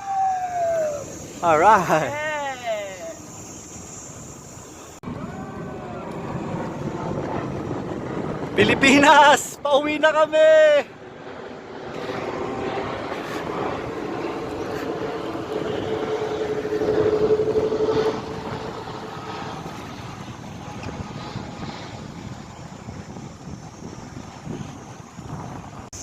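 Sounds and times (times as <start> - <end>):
wind noise: 0.0 - 26.0
motor vehicle passing: 10.9 - 20.7.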